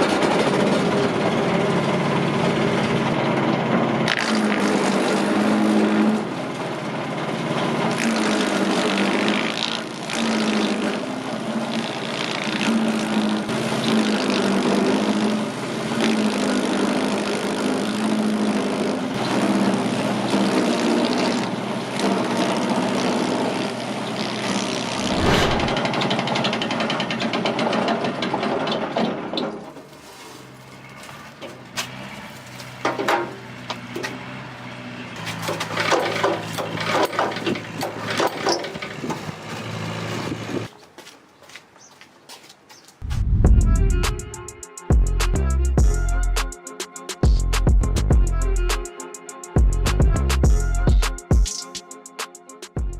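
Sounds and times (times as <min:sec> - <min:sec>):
wood grinding machine running: 0:00.0 - 0:40.7
low thump: 0:43.0 - 0:44.4.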